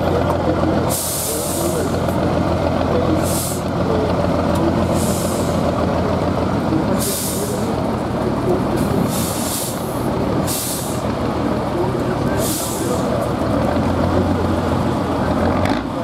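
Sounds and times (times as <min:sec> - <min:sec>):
diesel truck engine running: 0:00.0 - 0:16.0
short hissing bursts: 0:10.5 - 0:11.0.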